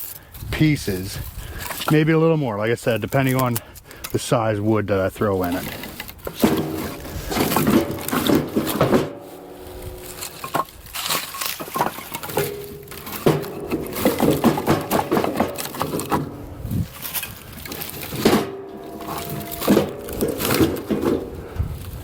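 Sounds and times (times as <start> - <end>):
firewood pieces clunking: 1.4 - 2.1, 5.2 - 22.0.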